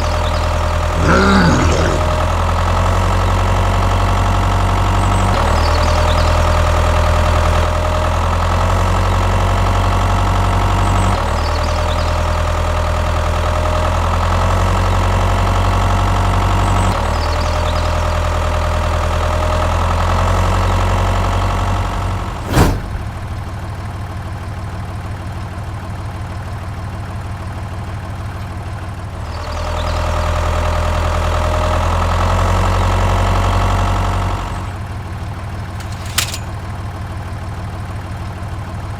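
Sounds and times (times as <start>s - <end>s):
sharp click: 35.8s - 36.6s
tractor engine idling: 35.8s - 36.7s.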